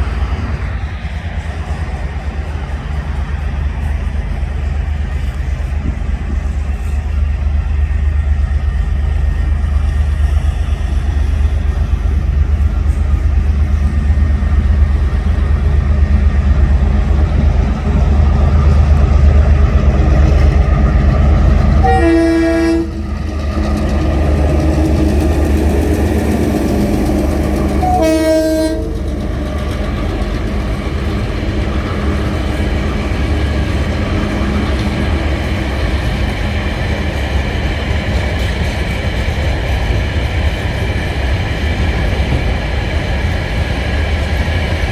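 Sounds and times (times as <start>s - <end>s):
diesel locomotive rumble: 0.0s - 44.9s
train horn chord: 21.8s - 23.7s, 27.5s - 29.4s.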